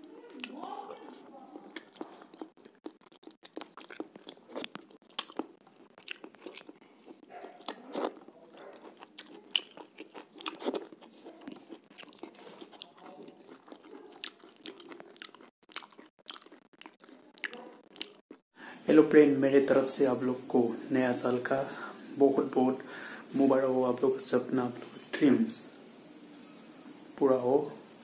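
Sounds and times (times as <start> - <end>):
person chewing and biting: 0.3 - 18.4.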